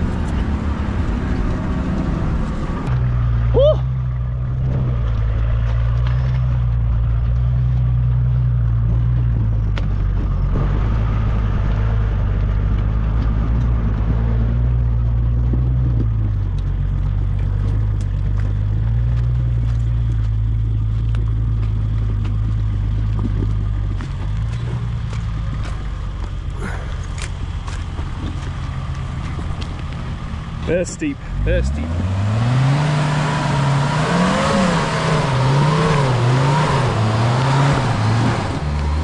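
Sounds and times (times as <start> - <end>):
off-road vehicle engine at low revs: 0.0 - 39.0
rocks clicking under tyres: 4.0 - 11.0, 11.6 - 31.0.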